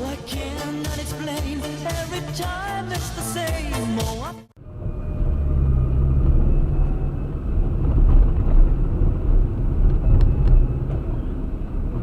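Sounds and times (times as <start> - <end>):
car engine and road noise: 4.5 - 12.0.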